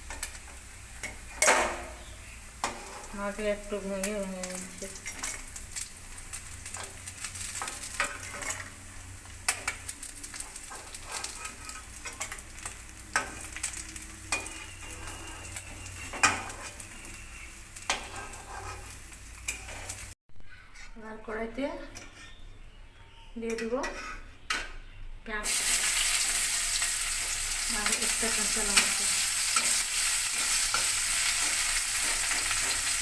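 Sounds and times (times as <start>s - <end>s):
fish sizzling in hot oil: 0.0s - 20.2s, 25.4s - 33.0s
spatula scraping a pan: 2.6s - 3.2s, 6.7s - 8.8s, 9.5s - 21.0s, 21.9s - 22.4s, 23.5s - 24.4s.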